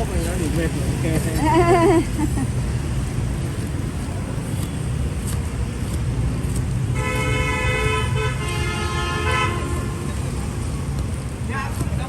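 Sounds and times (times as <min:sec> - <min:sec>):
road traffic rumbling: 0:00.0 - 0:12.0
vehicle horn long note: 0:07.0 - 0:10.1.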